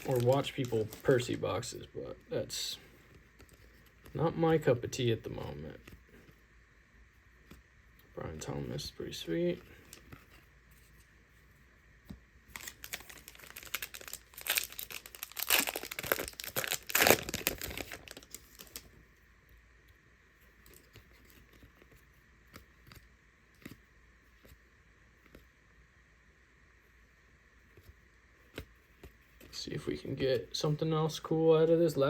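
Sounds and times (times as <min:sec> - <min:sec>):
plastic wrapping tearing and crinkling: 0:00.0 - 0:01.4, 0:12.5 - 0:18.9
faint clicks of cards handled: 0:19.9 - 0:24.6.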